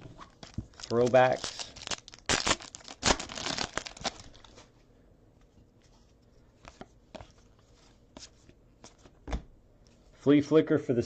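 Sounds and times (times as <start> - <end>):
foil wrapper crinkling and tearing: 0.2 - 4.6.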